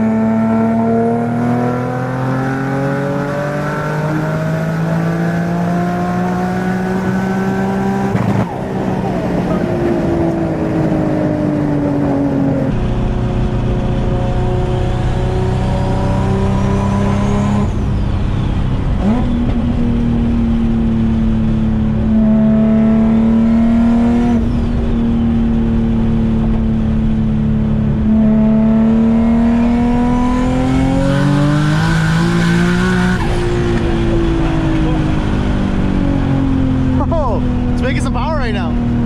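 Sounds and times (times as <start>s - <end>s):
car engine running hard: 0.0s - 39.0s.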